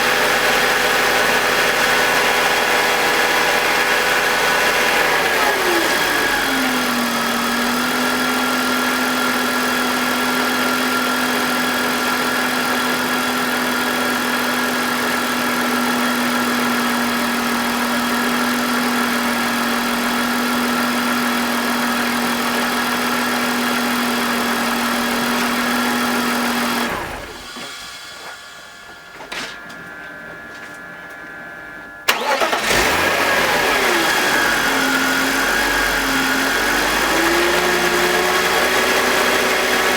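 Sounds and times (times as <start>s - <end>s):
engine restarting and revving: 0.0s - 12.8s, 19.1s - 28.1s, 32.1s - 39.9s
car engine idling: 32.1s - 39.9s.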